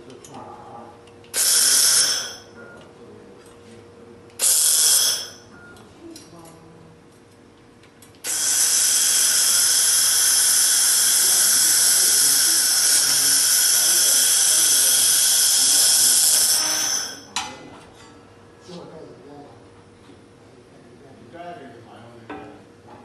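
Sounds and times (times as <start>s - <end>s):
laser welder whining hiss: 1.4s - 2.5s, 4.4s - 5.5s, 8.2s - 17.3s.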